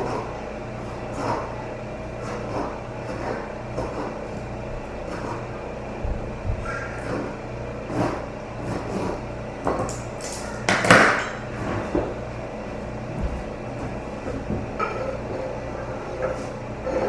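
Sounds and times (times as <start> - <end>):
steady hum: 0.0 - 17.0
pots and pans clattering: 9.6 - 12.2.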